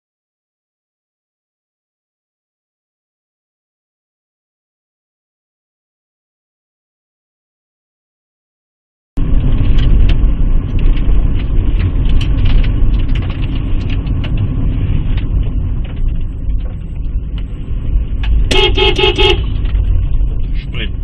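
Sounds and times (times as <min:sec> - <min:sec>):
car road and engine rumble: 0:09.2 - 0:21.0
car horn honks: 0:18.5 - 0:19.6.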